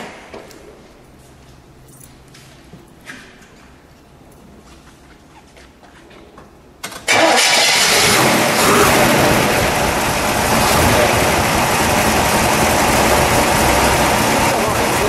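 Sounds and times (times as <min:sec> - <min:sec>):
car engine starting and idling: 0:06.8 - 0:15.0.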